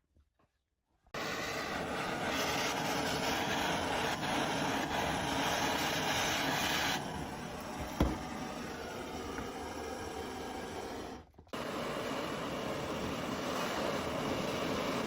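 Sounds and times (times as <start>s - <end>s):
thump: 7.8s - 8.3s.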